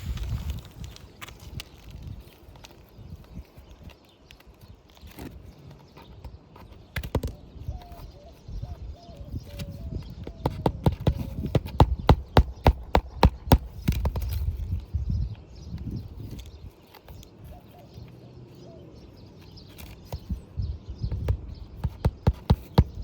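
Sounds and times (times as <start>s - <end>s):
hammer striking nails: 10.5s - 14.2s, 21.8s - 23.0s.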